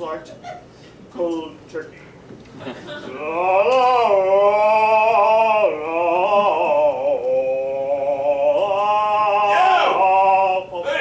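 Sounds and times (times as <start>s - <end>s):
person singing mock-operatic: 3.1s - 11.0s.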